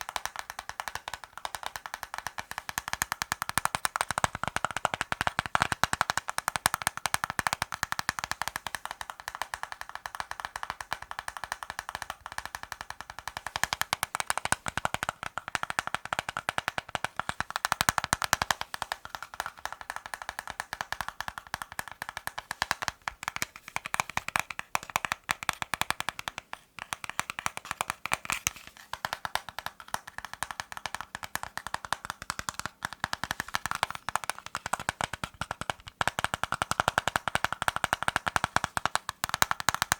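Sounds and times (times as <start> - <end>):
fast tapping on hard objects: 0.0 - 39.9.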